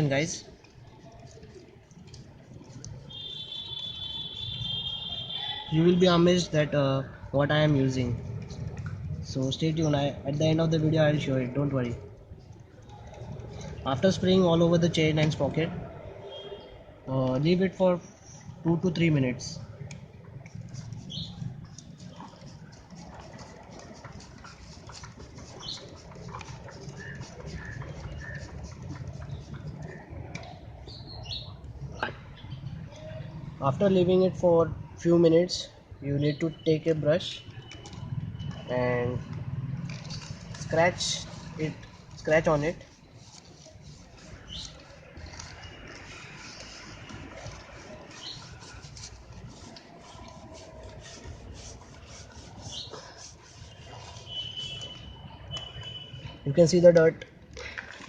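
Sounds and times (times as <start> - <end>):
brush scrubbing chain: 20.5 - 29.8, 39.8 - 55.0.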